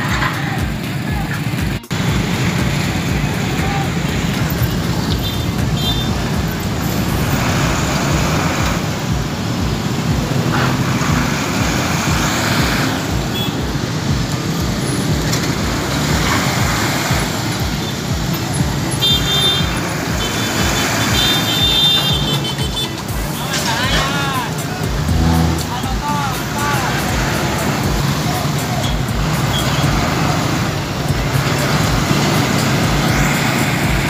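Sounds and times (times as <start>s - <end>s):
vehicles passing: 0.0s - 34.0s
high-pitched tone: 24.0s - 26.0s
low rumble: 24.9s - 25.8s.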